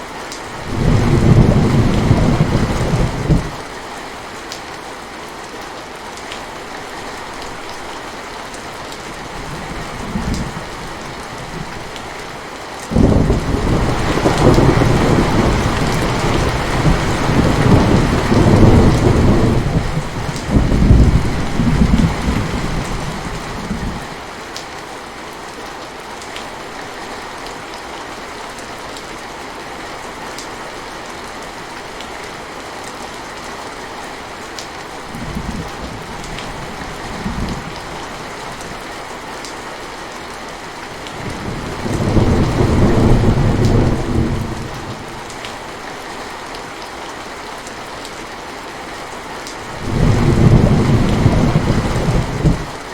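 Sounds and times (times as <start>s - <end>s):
steady rain falling: 0.0s - 52.9s
thunder rumbling: 0.6s - 3.6s, 12.9s - 24.2s, 41.1s - 45.3s, 49.6s - 52.8s.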